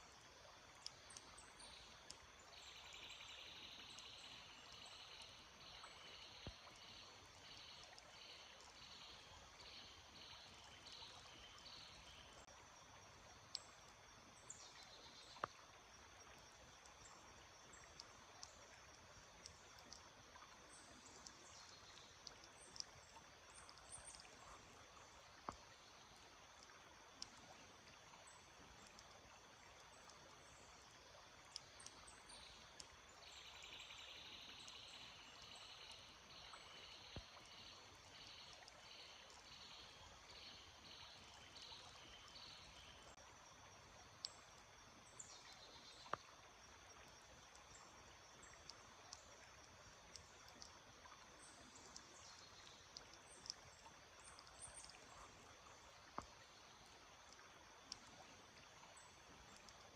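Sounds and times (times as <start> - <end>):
small stream trickling: 0.0 - 59.9.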